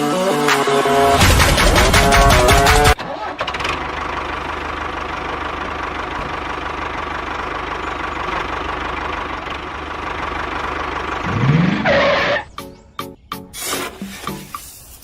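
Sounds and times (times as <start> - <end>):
small tractor engine knocking: 1.3 - 11.2.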